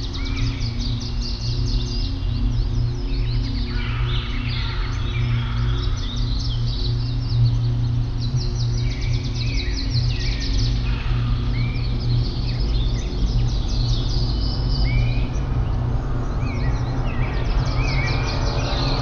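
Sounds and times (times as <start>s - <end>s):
songbirds chirping: 0.0s - 19.0s
steady low drone: 0.0s - 19.0s.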